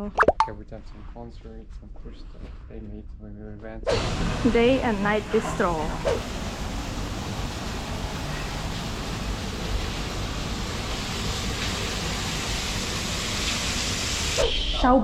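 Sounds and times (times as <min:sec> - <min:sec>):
steady rushing hiss: 0:05.1 - 0:14.4.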